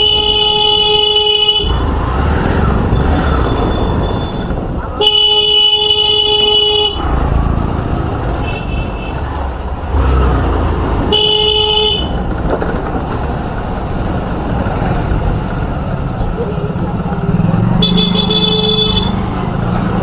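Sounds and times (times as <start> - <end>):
vehicle horn honking: 0.0 - 1.8, 3.6 - 7.1, 11.1 - 12.2, 17.8 - 19.2
motorcycle engine: 0.0 - 20.0
road rumble: 0.0 - 20.0.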